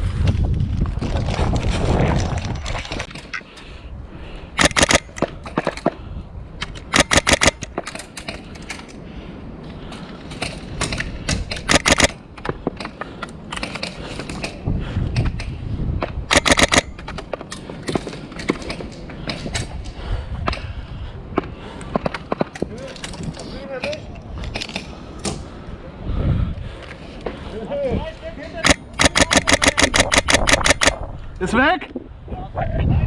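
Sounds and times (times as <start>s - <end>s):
faint clicks: 4.6s - 5.3s, 6.9s - 7.7s, 11.7s - 12.2s, 16.3s - 17.0s, 28.6s - 31.0s
airsoft rifle bursts: 4.6s - 5.8s, 6.8s - 7.8s, 11.7s - 12.2s, 16.3s - 17.0s, 28.6s - 31.0s.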